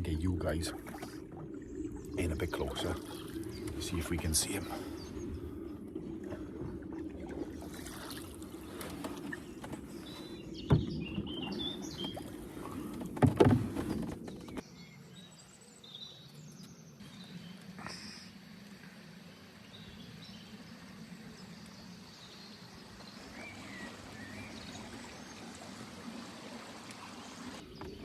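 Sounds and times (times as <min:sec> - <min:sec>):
water around canoe: 0:00.0 - 0:28.0
small birds chirping: 0:01.6 - 0:05.8, 0:09.2 - 0:13.0, 0:13.8 - 0:25.7
paddle knocking hull: 0:06.2 - 0:14.6.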